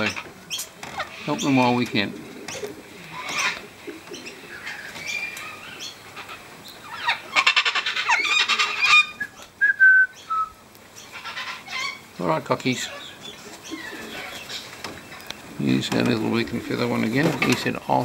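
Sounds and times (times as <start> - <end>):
harsh rasping bird call: 0.0 - 12.1, 12.8 - 14.7
wild birds calling: 0.0 - 18.0
short whistled bird notes: 9.2 - 10.6.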